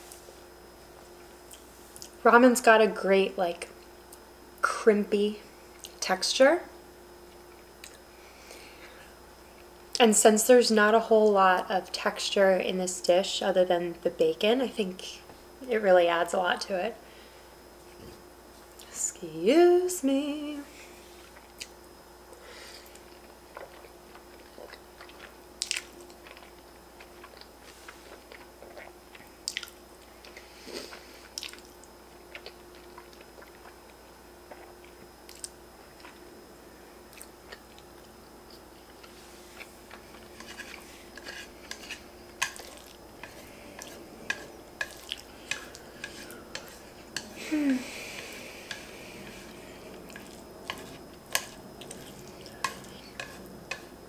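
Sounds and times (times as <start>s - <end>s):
person chewing noodles: 22.8s - 36.2s, 37.1s - 54.0s
wet mouth clicks and smacks: 35.3s - 35.6s.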